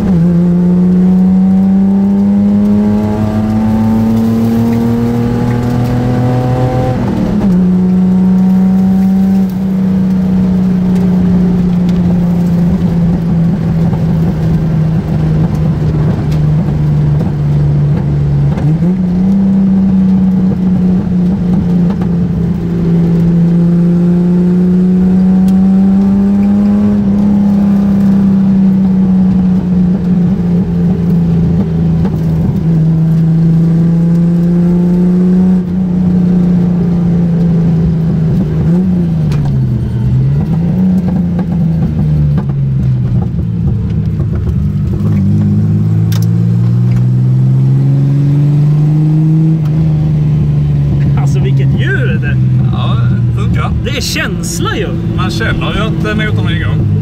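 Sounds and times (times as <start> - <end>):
car engine running: 49.6 - 57.0.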